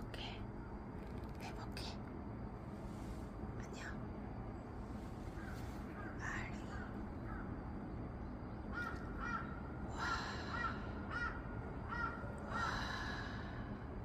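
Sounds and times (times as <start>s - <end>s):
crow cawing: 5.4s - 6.1s, 8.7s - 13.6s.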